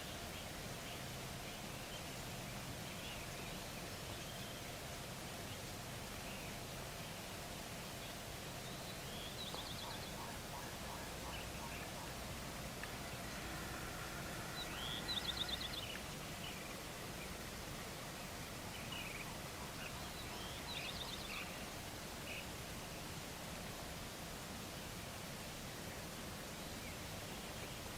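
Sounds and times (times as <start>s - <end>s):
faint bird calls: 9.1s - 17.4s.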